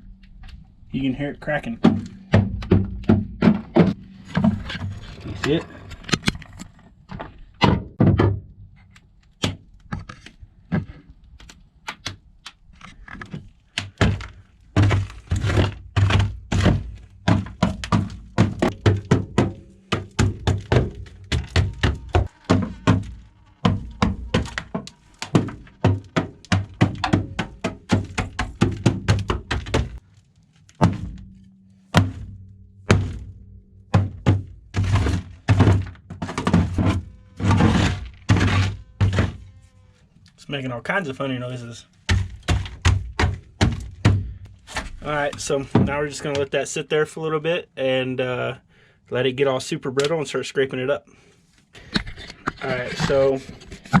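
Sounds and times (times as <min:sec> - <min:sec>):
dry ice being crushed: 0:12.7 - 0:31.2.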